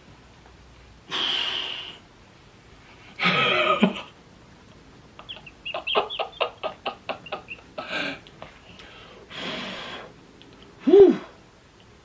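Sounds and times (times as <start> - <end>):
chicken clucking: 5.2 - 7.8.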